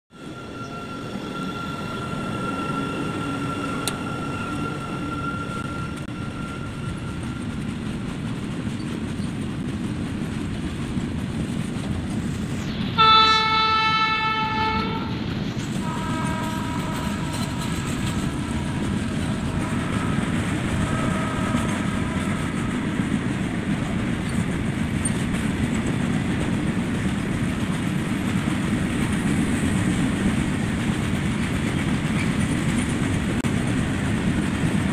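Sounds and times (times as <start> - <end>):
train wheels rumbling on rails: 0.1 - 34.9
train horn blast: 12.9 - 23.2.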